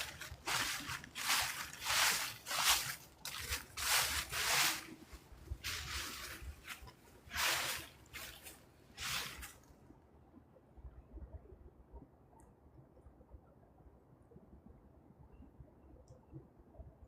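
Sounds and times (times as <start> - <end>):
footsteps in fallen leaves: 0.0 - 9.6.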